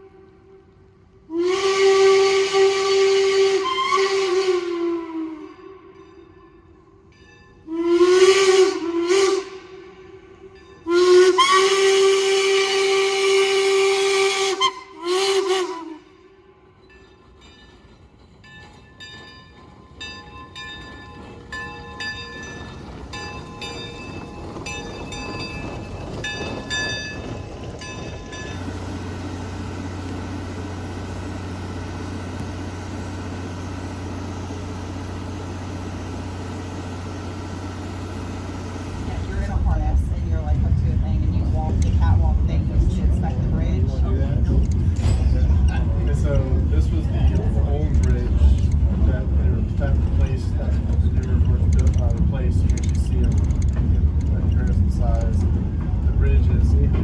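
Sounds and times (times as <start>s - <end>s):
steam locomotive whistle: 0.0s - 6.0s, 7.7s - 16.6s
locomotive chuffing knocks: 17.7s - 57.0s.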